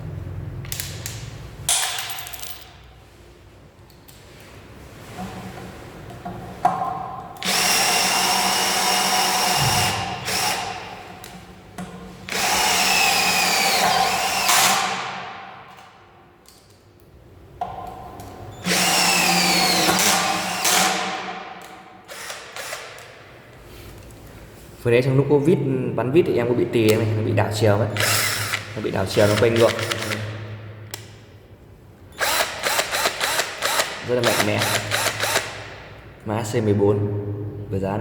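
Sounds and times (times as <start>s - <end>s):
cordless drill driving screws: 7.4s - 10.9s, 12.3s - 15.0s, 18.6s - 21.1s, 22.1s - 23.0s, 28.0s - 30.2s, 32.2s - 35.6s.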